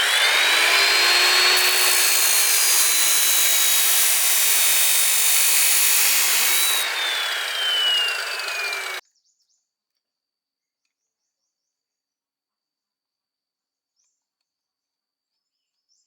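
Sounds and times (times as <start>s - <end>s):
power tool motor whine: 0.0s - 9.0s.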